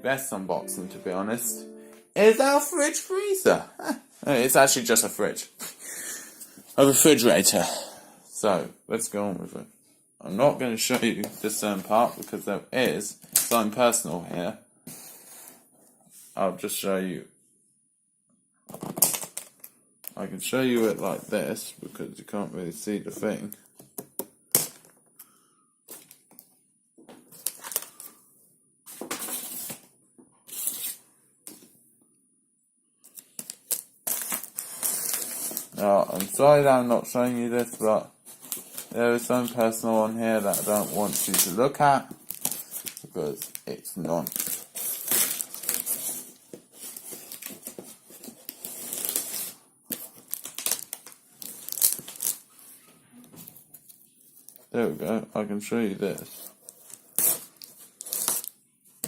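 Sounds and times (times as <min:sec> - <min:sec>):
packaging rustling and tearing: 0:42.2 - 0:52.5, 0:56.2 - 0:58.6.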